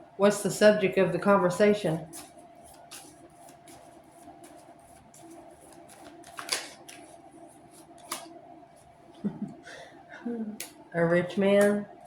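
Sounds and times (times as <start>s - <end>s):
faint steady hum: 0.0s - 12.0s
cards rustling and clicking: 2.1s - 8.4s
card snaps: 6.0s - 7.0s, 8.0s - 8.3s.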